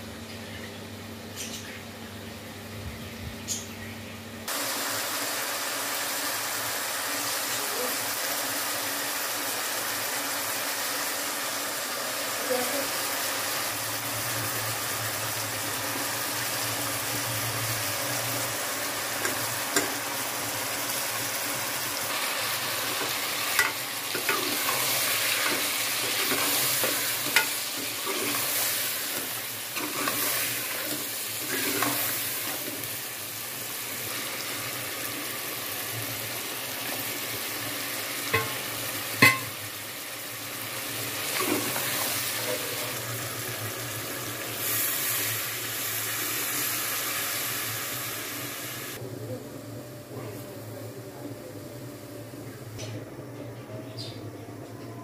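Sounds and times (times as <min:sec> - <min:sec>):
food sizzling in a pot: 0:04.5 - 0:49.0
spoon clinking against pot: 0:38.3 - 0:38.6, 0:39.2 - 0:39.5.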